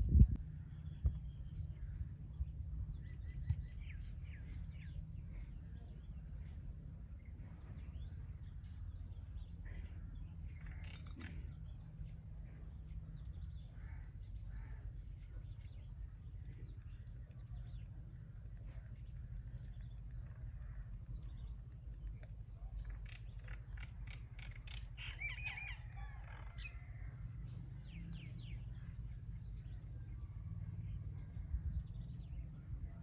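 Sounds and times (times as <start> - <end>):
steady low rumble: 0.0 - 25.0, 26.9 - 33.0
small birds chirping: 0.0 - 33.0.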